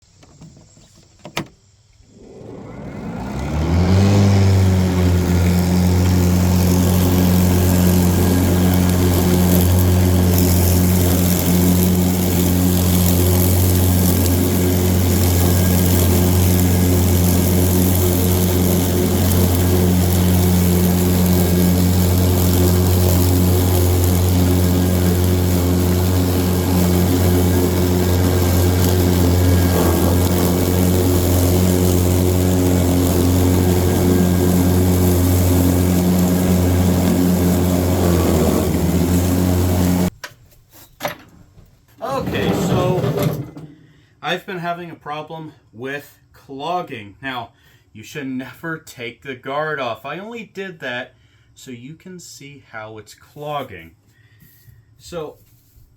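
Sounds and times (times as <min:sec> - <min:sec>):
electric mower deck humming: 0:00.1 - 0:40.2, 0:42.2 - 0:43.6.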